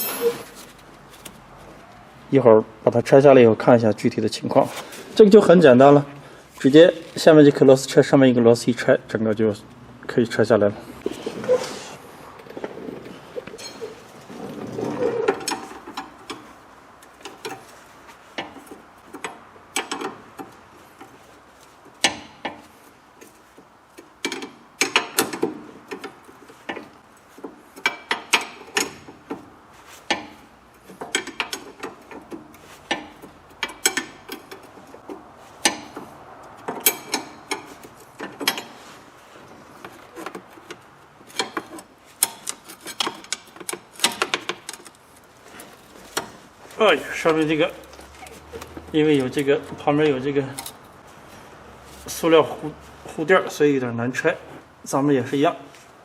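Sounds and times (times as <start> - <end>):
spanner clicking on metal bolt: 24.0 - 26.8, 27.8 - 29.1, 31.0 - 34.7, 36.7 - 38.8, 39.8 - 45.0.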